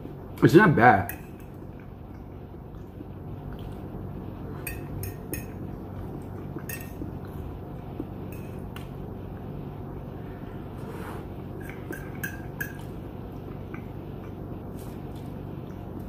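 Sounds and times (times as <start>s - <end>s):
low hum: 1.1s - 16.0s
cutlery clinking against dish: 11.6s - 12.9s.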